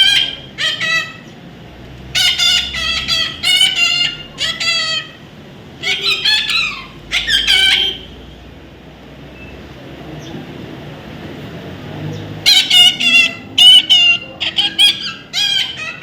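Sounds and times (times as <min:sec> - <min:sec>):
parrot squawking: 0:00.0 - 0:01.5, 0:02.1 - 0:08.3, 0:12.4 - 0:16.0.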